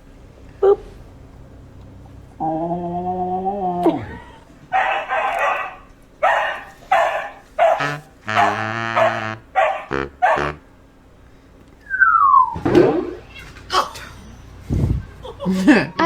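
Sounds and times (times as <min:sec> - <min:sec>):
dog barking: 0:04.5 - 0:10.7.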